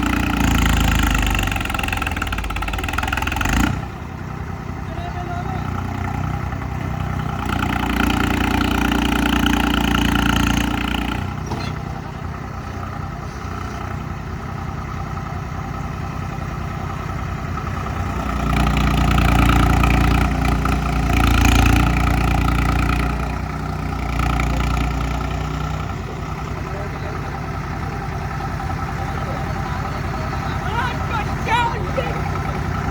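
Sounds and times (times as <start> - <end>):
diesel tractor engines under load: 0.0 - 32.9.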